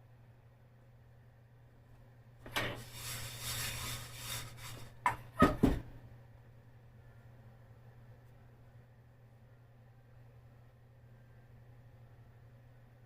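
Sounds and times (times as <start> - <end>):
rubbing or scraping: 2.5 - 5.0
faint low hum: 4.8 - 13.0.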